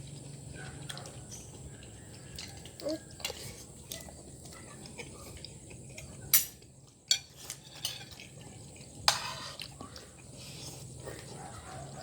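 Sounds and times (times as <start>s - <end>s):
cutlery clinking on a plate: 6.3s - 8.3s.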